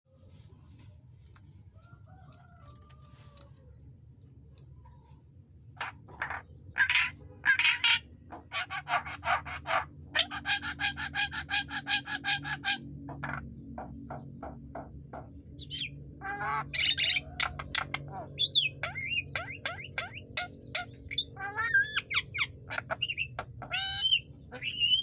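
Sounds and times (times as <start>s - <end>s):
bird whistles and harsh chattering: 15.6s - 25.0s.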